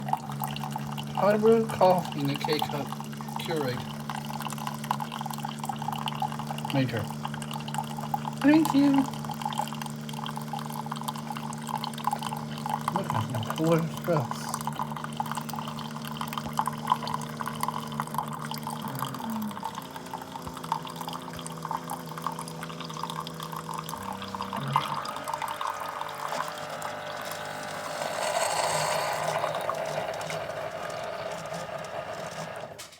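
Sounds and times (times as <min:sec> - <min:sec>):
coffee dripping into cup: 0:00.0 - 0:32.8
coffee maker pump humming: 0:00.0 - 0:32.9
loud hiss: 0:25.2 - 0:32.9.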